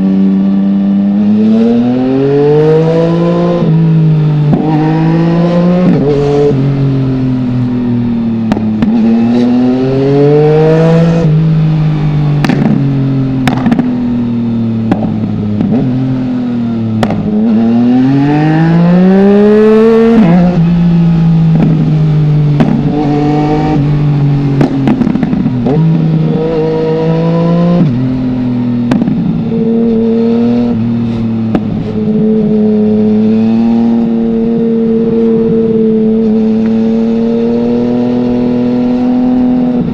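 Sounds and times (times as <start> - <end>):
motorcycle engine revving: 0.0 - 39.9
exhaust cracks: 12.4 - 16.0, 16.9 - 17.4, 21.5 - 23.1, 23.7 - 26.4, 28.7 - 29.5, 31.1 - 32.0.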